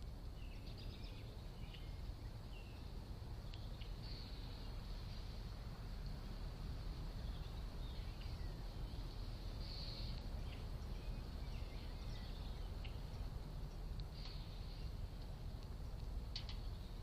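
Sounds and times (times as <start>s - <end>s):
low background rumble: 0.0s - 17.0s
bird chirps and calls: 0.3s - 4.8s, 7.2s - 15.0s.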